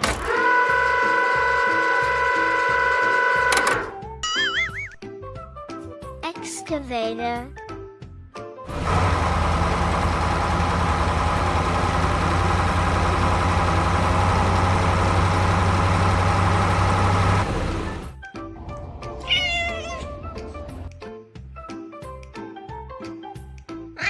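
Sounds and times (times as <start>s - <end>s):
music: 3.9s - 8.7s, 18.2s - 24.0s.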